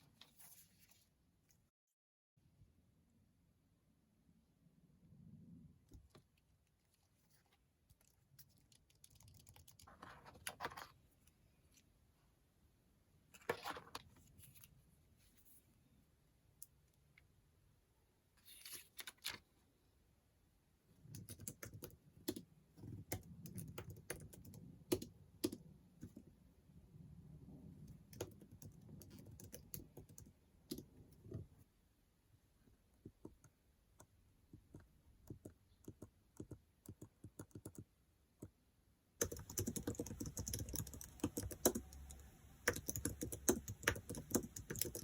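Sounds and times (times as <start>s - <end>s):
keyboard typing: 8.5s - 10.9s, 21.1s - 26.3s, 27.9s - 31.4s, 33.2s - 37.9s, 39.2s - 45.0s.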